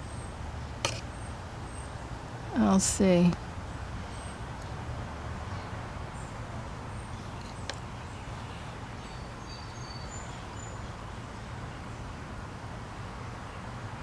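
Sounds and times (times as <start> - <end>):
birds chirping: 5.5 - 12.1.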